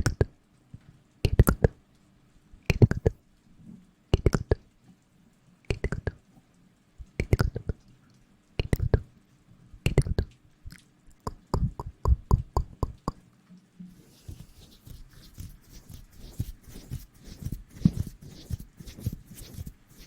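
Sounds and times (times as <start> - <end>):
sharp evenly spaced taps: 11.2 - 13.2, 14.1 - 20.0
dense scratchy rustling: 14.0 - 20.0.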